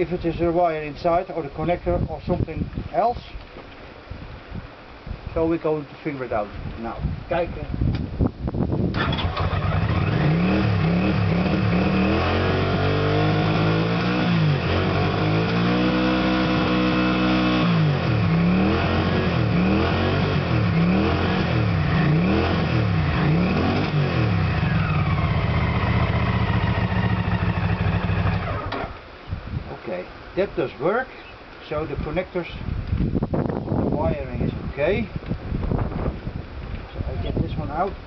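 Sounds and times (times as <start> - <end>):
motorcycle engine revving: 8.9 - 29.0.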